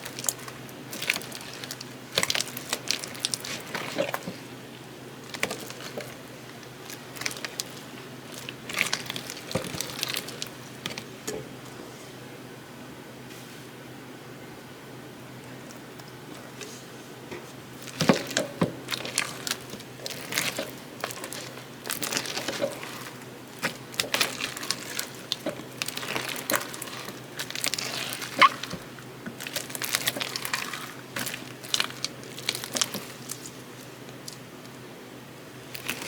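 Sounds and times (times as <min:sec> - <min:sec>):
slime squished by hand: 0:00.0 - 0:04.6, 0:05.2 - 0:11.4, 0:17.8 - 0:34.5.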